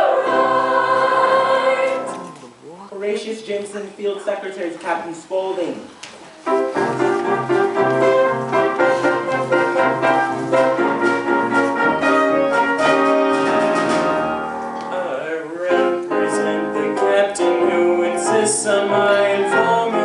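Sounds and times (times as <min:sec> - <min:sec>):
piano show tune: 0:06.3 - 0:20.0.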